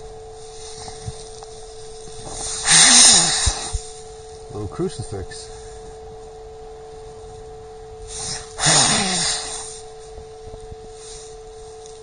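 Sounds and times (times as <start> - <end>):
electronic hum tone: 0.0 - 12.0
breathy snort through nose: 2.4 - 3.8, 8.1 - 9.8.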